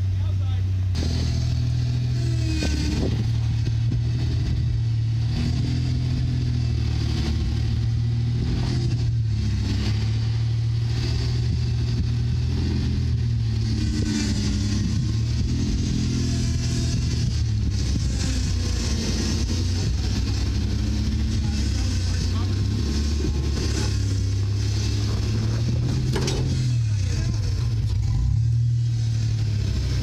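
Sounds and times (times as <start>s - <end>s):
engine running at low revs: 0.0s - 30.0s.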